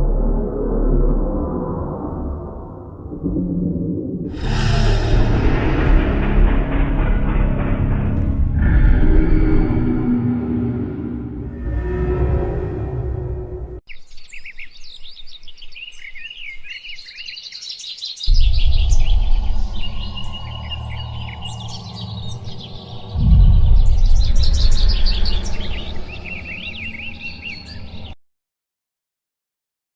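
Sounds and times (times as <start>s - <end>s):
deep low creature rumble: 0.0s - 13.8s, 18.3s - 28.1s
birds chirping: 13.2s - 28.2s.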